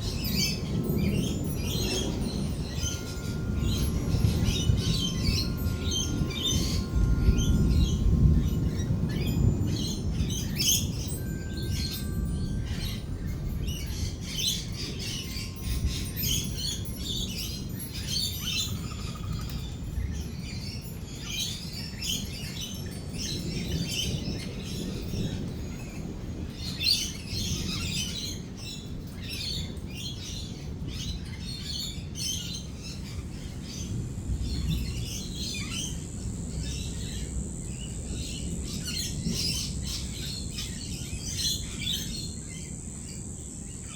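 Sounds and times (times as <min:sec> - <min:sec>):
steady low rumble: 0:00.0 - 0:18.0, 0:32.5 - 0:43.9
thin high steady tone: 0:00.0 - 0:21.6
lorikeets chattering and screeching: 0:00.0 - 0:25.5, 0:29.6 - 0:43.9.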